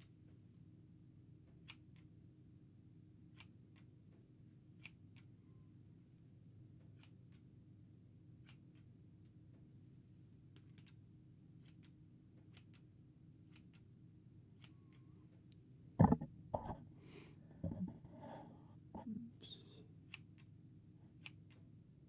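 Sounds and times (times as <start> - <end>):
low steady hum: 0.0 - 22.0
scissors snipping hair: 4.8 - 5.3, 6.9 - 7.4, 11.6 - 12.9, 13.5 - 13.8, 20.1 - 20.5, 21.1 - 21.6.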